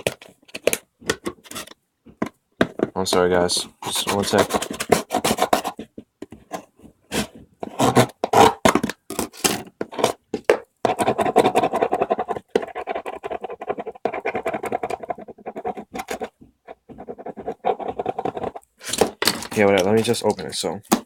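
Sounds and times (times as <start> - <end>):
hands scratching and rubbing: 3.3 - 7.6.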